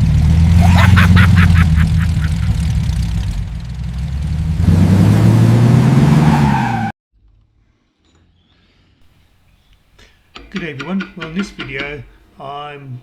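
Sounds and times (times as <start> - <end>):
engine droning: 0.0 - 6.9.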